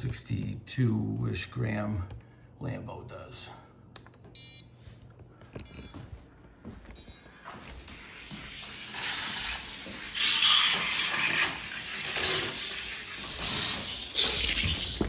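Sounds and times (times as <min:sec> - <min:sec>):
toy car wheels rattling on track: 0:08.7 - 0:15.0.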